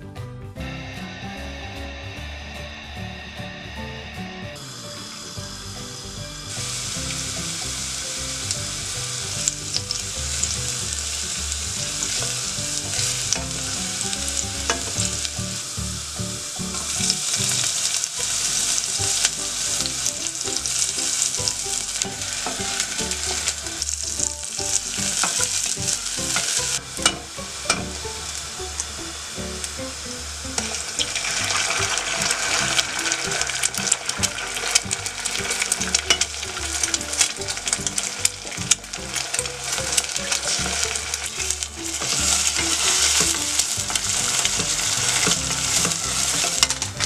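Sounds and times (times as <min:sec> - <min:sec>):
garlic sizzling in hot oil: 0:00.7 - 0:47.0
wooden spatula scraping pan: 0:30.5 - 0:47.0.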